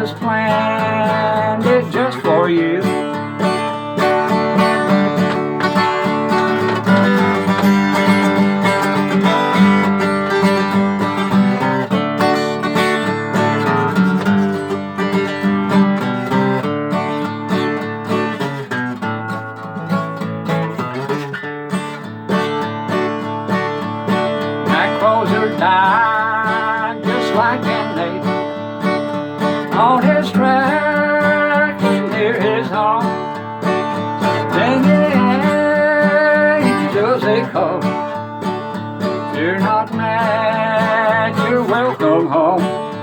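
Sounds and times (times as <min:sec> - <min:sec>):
person singing: 0:00.0 - 0:03.6, 0:24.4 - 0:43.0
acoustic guitar strumming: 0:00.0 - 0:43.0.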